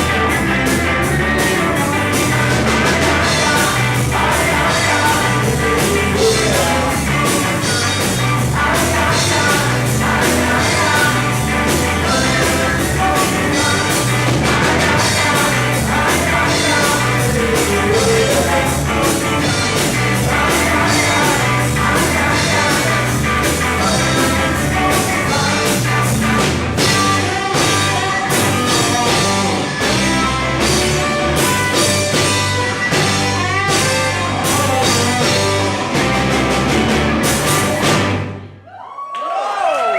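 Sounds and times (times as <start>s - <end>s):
drum kit beat: 0.0s - 38.4s
bass guitar: 0.0s - 38.6s
electric guitars: 0.0s - 38.6s
person singing: 1.2s - 29.9s, 33.8s - 36.0s.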